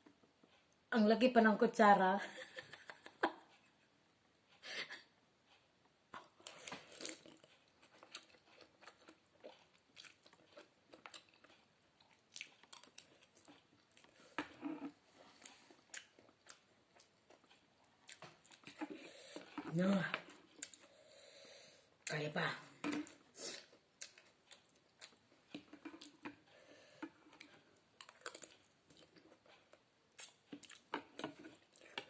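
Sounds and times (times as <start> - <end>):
person chewing noodles: 6.2 - 21.6, 23.0 - 32.0.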